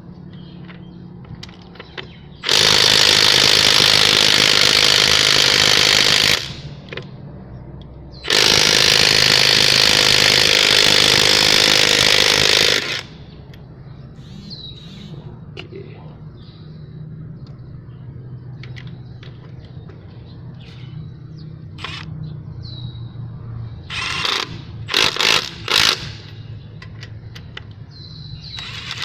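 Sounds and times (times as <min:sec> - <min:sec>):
impact driver hammering: 0:08.3 - 0:13.1.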